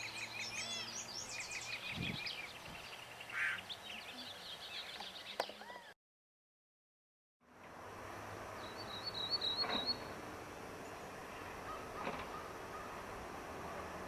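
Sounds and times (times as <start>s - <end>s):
bird trilling: 0.0s - 2.5s, 3.3s - 3.7s, 11.6s - 13.0s
outdoor background hiss: 0.0s - 5.9s, 7.4s - 14.0s.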